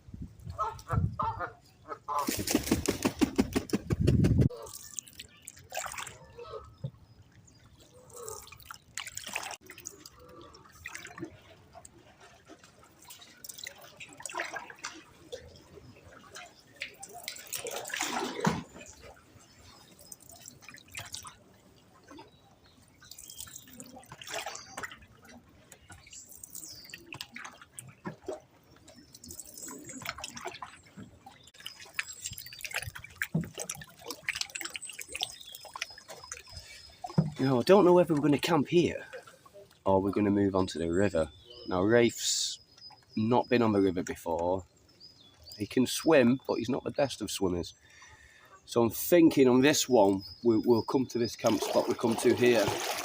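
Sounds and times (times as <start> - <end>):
paddle splashing in water: 0.5 - 39.8, 51.2 - 53.0
water dripping from paddle: 4.5 - 40.2, 41.6 - 46.6, 49.5 - 53.0.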